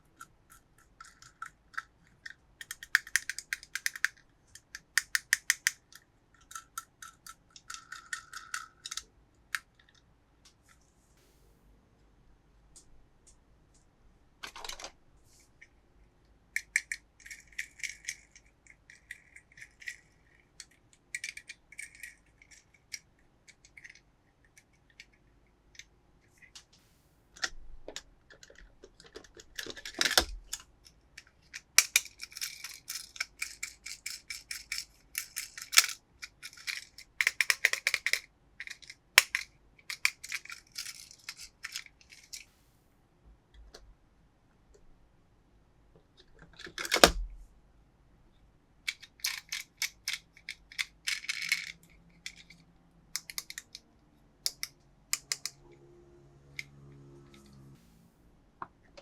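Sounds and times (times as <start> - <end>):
plastic clicks and rattles: 0.1 - 10.8, 14.4 - 15.0, 16.6 - 25.2, 27.4 - 42.5, 46.0 - 47.4, 48.9 - 53.8, 54.4 - 55.6.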